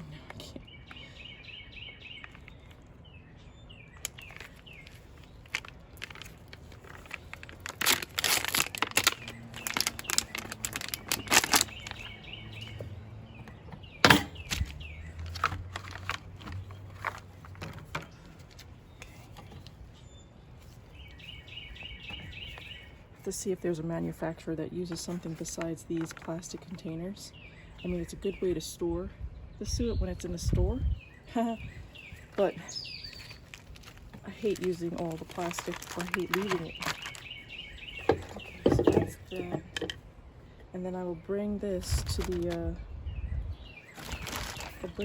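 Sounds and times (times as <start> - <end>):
birds chirping: 0.0 - 45.0
plastic tray crinkling: 4.0 - 12.1, 14.4 - 19.7, 33.0 - 37.4, 42.0 - 42.6, 43.9 - 45.0.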